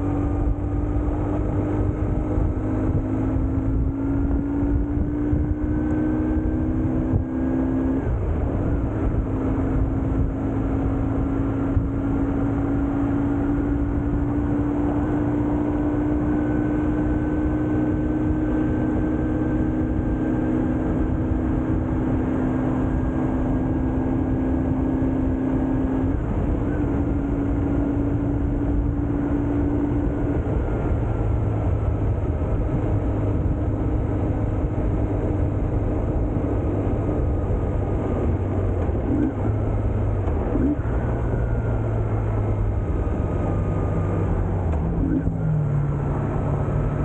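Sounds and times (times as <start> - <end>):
motorcycle engine running: 0.0 - 47.0
wind and road noise: 0.0 - 47.0.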